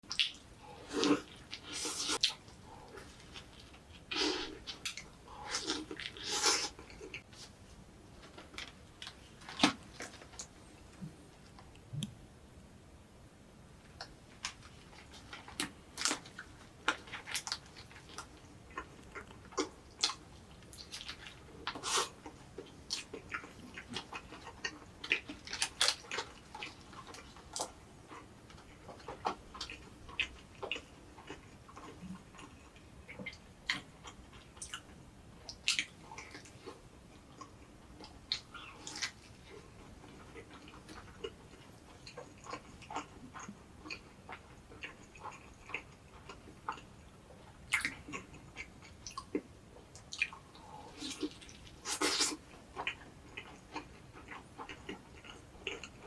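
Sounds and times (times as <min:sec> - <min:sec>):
chewing with mouth clicks: 0:14.0 - 0:56.0.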